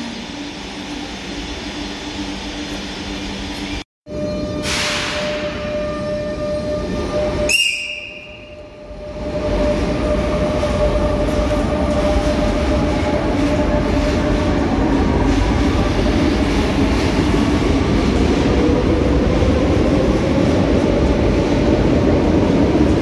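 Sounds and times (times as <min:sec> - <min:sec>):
electric train rumbling: 0:00.0 - 0:23.0.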